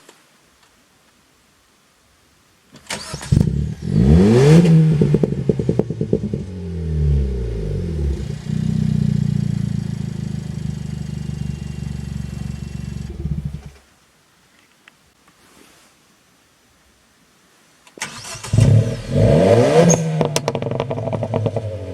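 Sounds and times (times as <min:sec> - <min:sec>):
car engine starting and idling: 0:02.9 - 0:13.8, 0:18.0 - 0:21.9.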